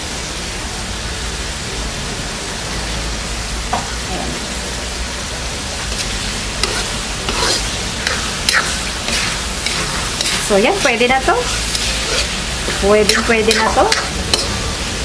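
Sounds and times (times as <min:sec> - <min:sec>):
food sizzling in a pan: 0:00.0 - 0:15.0
metal spatula scraping a pan: 0:05.9 - 0:14.6.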